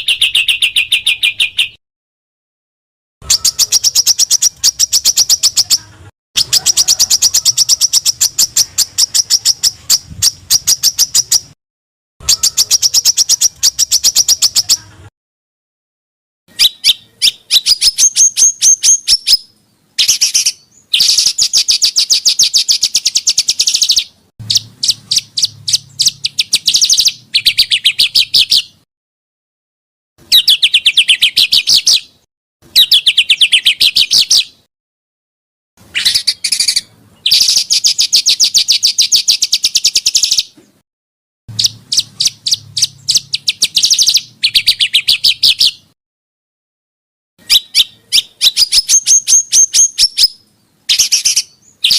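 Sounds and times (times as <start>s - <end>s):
songbird rapid repeated notes: 3.2s - 5.7s, 16.6s - 28.8s, 41.5s - 45.9s.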